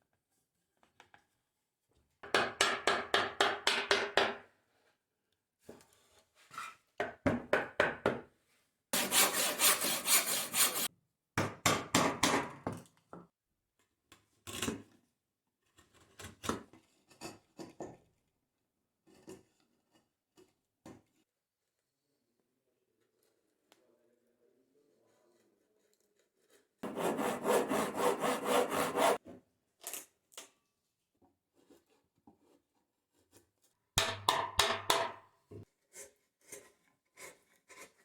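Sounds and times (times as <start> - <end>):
hand saw cutting wood: 9.0 - 10.9, 26.8 - 29.2.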